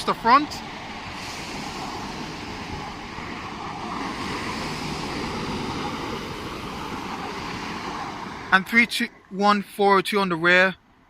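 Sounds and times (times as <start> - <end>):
electric train pulling away: 0.0 - 8.6.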